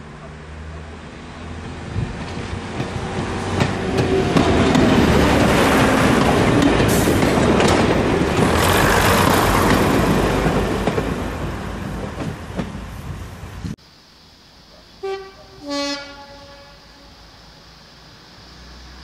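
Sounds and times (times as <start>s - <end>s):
train diesel engines running: 0.0s - 13.8s
train wheels clicking over rail joints: 1.6s - 13.0s.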